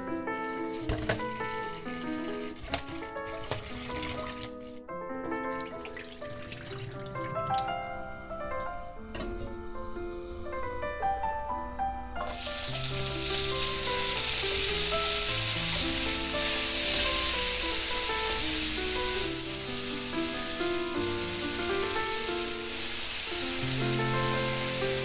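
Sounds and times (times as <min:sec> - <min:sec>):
garlic sizzling in hot oil: 0:00.4 - 0:04.7, 0:12.2 - 0:25.0.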